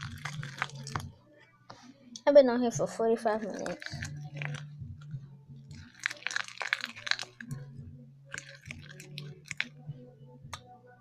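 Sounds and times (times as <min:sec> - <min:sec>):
slime squeezed in hands: 0:00.0 - 0:01.0, 0:03.4 - 0:04.7, 0:05.8 - 0:07.6, 0:08.3 - 0:09.7.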